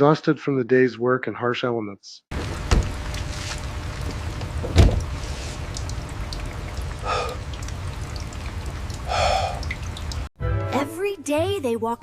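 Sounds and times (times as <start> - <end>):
steady rain: 2.3 - 10.3.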